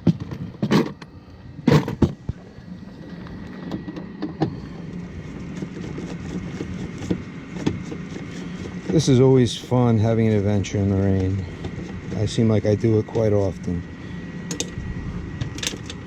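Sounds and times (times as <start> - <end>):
items knocking and clunking: 3.6 - 9.0.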